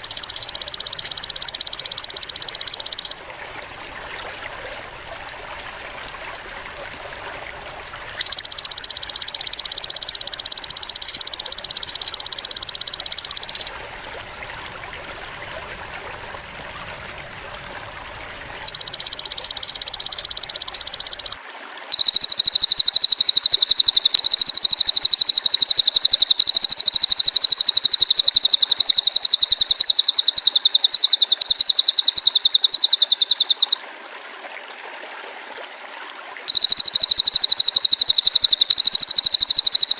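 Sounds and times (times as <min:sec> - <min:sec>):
high-pitched insect trills: 0:00.0 - 0:03.2, 0:08.2 - 0:13.8, 0:18.6 - 0:33.8, 0:36.5 - 0:39.9
faint steady background noise: 0:00.0 - 0:39.9.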